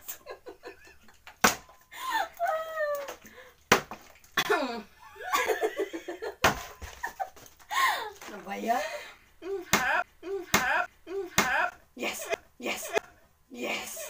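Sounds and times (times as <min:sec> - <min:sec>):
people laughing and giggling: 0:00.0 - 0:01.2, 0:05.1 - 0:08.1.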